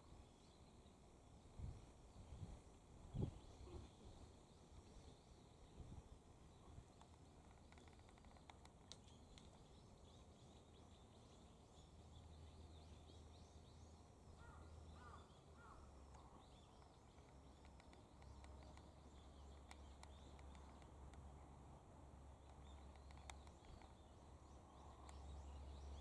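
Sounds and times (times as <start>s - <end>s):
small birds chirping: 3.1s - 26.0s.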